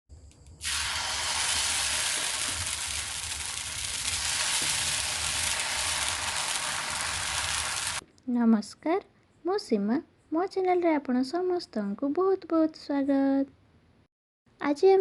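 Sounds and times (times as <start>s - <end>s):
food sizzling in a pan: 0.6s - 8.0s.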